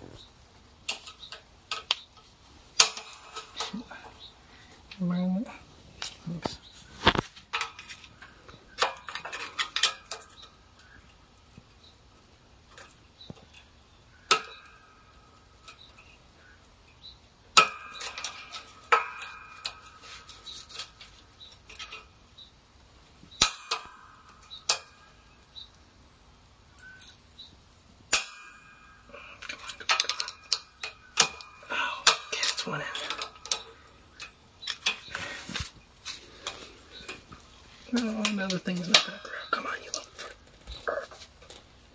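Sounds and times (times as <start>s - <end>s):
quiet metal clinks: 0.8s - 6.6s, 12.7s - 22.5s, 26.7s - 41.7s
metal tools clanking: 28.1s - 41.6s.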